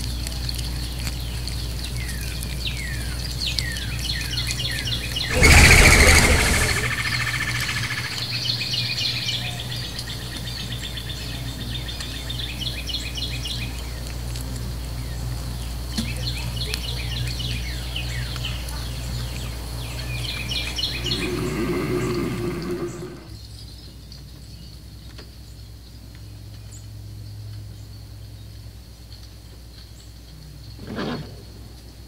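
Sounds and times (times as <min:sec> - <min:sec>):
birds chirping: 0:04.4 - 0:10.1, 0:19.0 - 0:23.4
steady low hum: 0:05.3 - 0:08.4.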